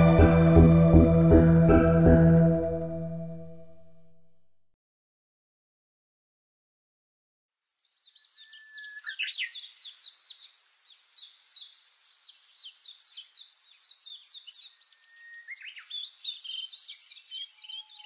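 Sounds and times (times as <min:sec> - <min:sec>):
songbirds chirping: 0:07.6 - 0:18.0
long steady bird whistle: 0:11.1 - 0:18.0.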